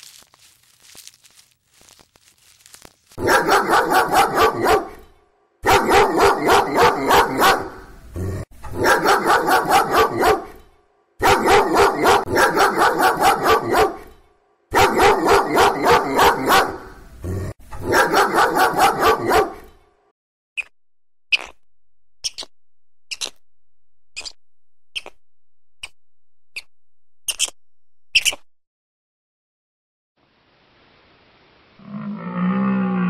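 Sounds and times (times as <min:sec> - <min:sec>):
puppy yapping barks: 0:03.2 - 0:05.0, 0:08.8 - 0:10.5, 0:11.2 - 0:14.1, 0:17.8 - 0:19.6.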